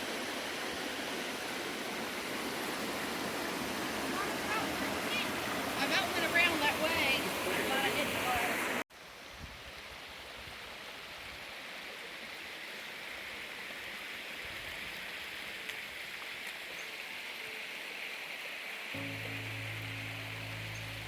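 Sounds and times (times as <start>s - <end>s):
water flowing over rocks: 0.0s - 21.0s
low steady hum: 19.0s - 21.0s.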